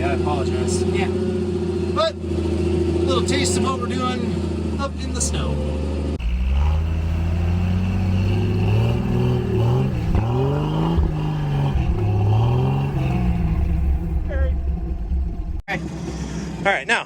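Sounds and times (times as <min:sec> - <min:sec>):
engine running under load: 0:00.0 - 0:17.0.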